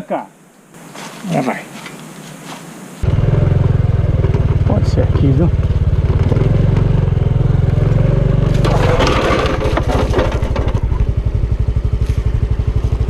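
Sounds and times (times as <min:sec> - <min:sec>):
motorcycle engine running: 0:03.0 - 0:13.0.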